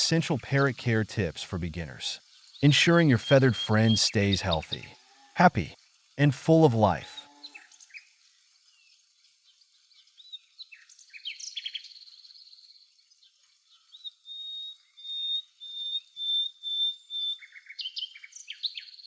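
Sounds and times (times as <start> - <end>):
birds chirping: 0.0 - 7.2
bird trill: 2.6 - 4.9.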